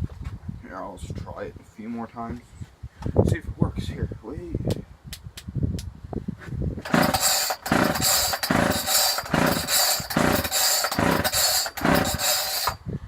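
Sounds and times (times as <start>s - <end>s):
chainsaw recoil starter pulls: 6.8s - 12.8s.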